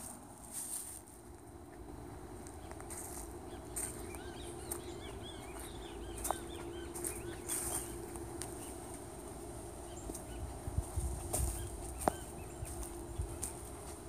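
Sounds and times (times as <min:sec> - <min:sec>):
footsteps on leaves: 0:00.0 - 0:01.2, 0:02.4 - 0:14.0
steady low hum: 0:00.0 - 0:14.0
small birds chirping: 0:01.6 - 0:14.0.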